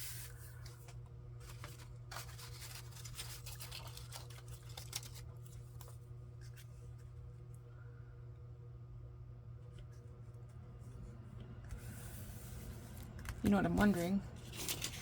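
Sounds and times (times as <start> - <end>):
paper being handled: 0.0 - 7.1, 13.8 - 15.0.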